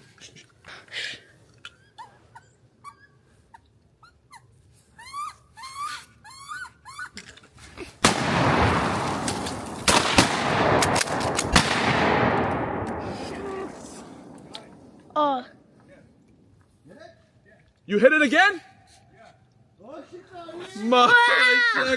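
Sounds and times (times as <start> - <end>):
shotgun blasts: 8.0 - 15.8.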